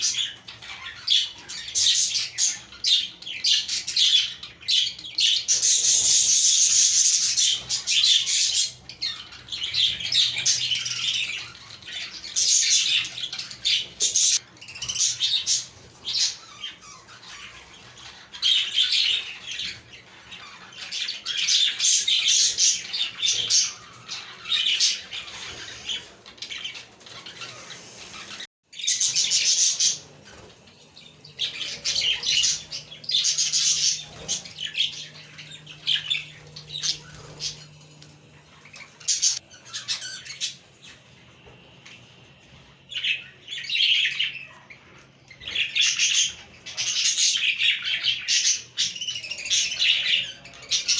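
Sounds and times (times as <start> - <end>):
budgerigars chirping and squawking: 0.0 - 50.9.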